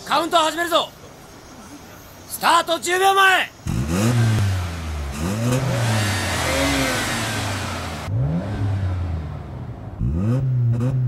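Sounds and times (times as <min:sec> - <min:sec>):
sports car engines idling and revving: 0:03.6 - 0:11.0.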